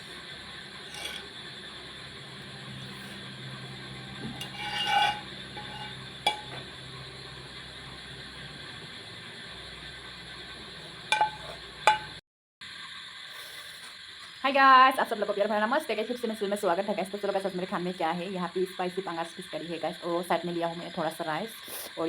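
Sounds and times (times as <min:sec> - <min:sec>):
steady low hum: 0:00.0 - 0:12.2
dishes clinking: 0:00.9 - 0:01.3, 0:04.2 - 0:06.7, 0:11.1 - 0:12.2.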